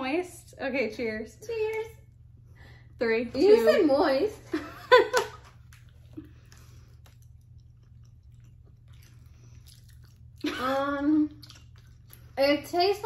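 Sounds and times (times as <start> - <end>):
soft chewing of gummy candy: 5.4 - 13.0.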